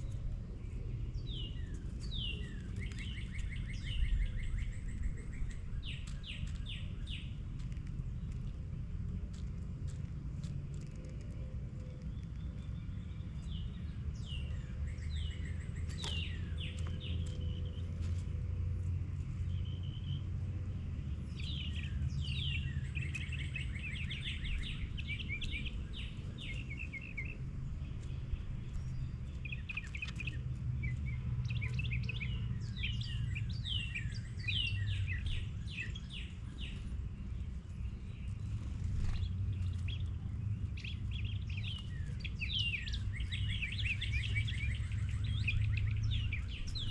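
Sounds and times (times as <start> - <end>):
songbirds chirping and singing: 0.0 - 46.9
steady low rumble: 0.0 - 46.9.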